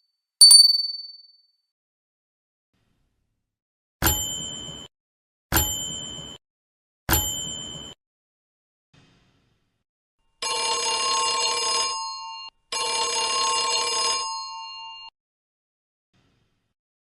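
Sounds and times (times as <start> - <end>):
telephone ringing: 10.4 - 15.1.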